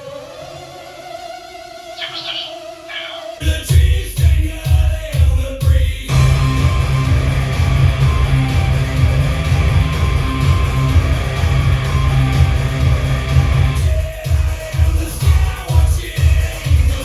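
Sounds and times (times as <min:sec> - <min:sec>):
guitar music from a radio: 0:06.1 - 0:13.8.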